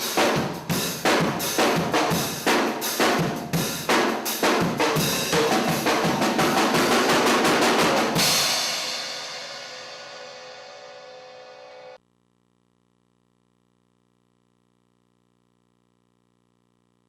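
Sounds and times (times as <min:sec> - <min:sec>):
cymbal crash ringing: 0:00.0 - 0:12.0
drum kit played hard: 0:00.0 - 0:12.0.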